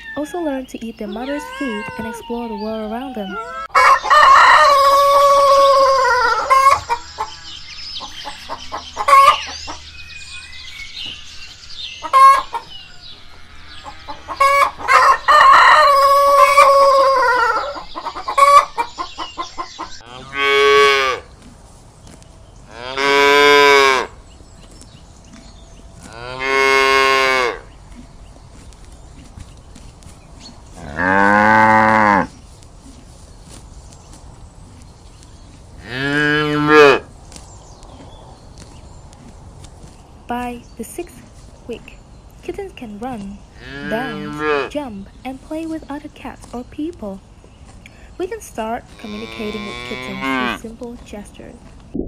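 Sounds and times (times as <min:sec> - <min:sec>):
chicken clucks: 0:01.1 - 0:09.9, 0:12.0 - 0:13.1, 0:13.8 - 0:20.0
rooster crowing: 0:03.3 - 0:06.8, 0:14.4 - 0:17.8
cow mooing: 0:20.0 - 0:21.3, 0:30.8 - 0:32.3, 0:35.8 - 0:37.1, 0:43.6 - 0:44.7, 0:49.0 - 0:50.7.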